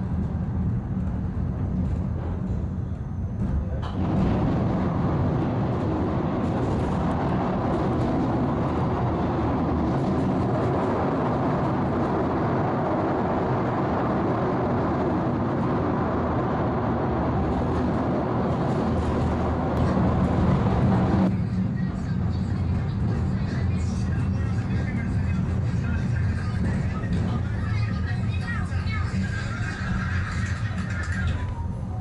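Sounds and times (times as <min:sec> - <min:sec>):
funicular car running on rails: 0:00.0 - 0:32.0.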